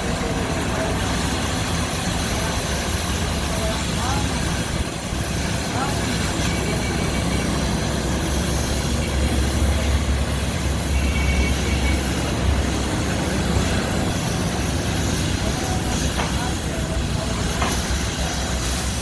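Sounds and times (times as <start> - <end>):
machinery cutting metal sheet: 0.4 - 19.0
high squeal of metal: 9.9 - 12.6.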